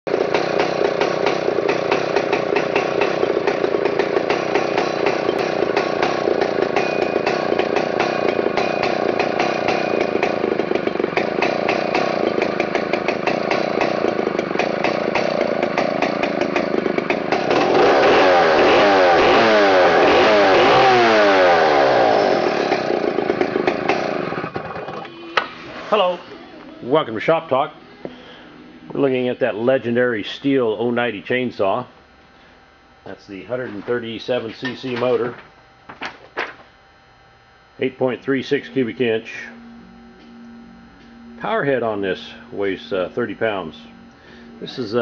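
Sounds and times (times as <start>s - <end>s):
chainsaw engine revving: 0.1s - 25.8s, 40.9s - 45.0s.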